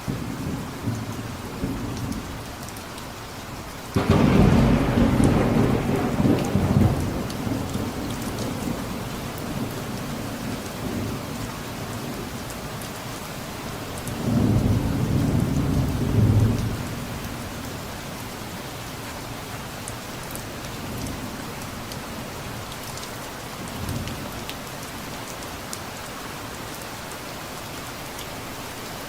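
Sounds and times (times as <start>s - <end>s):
rain falling: 0.0s - 29.0s
rolling thunder: 4.0s - 11.5s, 14.2s - 17.4s.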